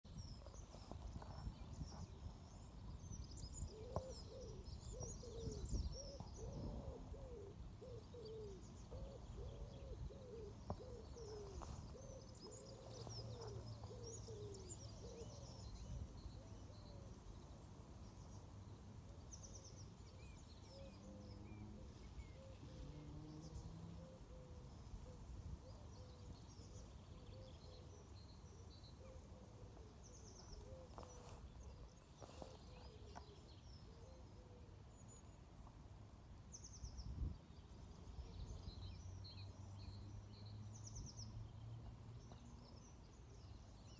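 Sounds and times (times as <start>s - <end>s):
small birds chirping: 0.0s - 43.9s
low cooing: 5.2s - 14.6s.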